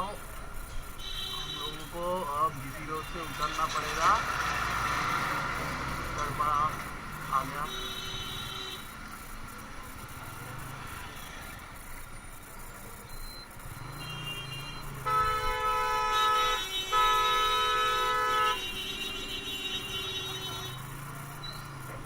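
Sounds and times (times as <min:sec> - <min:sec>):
road and motorcycle engine noise: 0:00.0 - 0:22.0
vehicle horn honking: 0:00.8 - 0:09.0, 0:13.7 - 0:22.0.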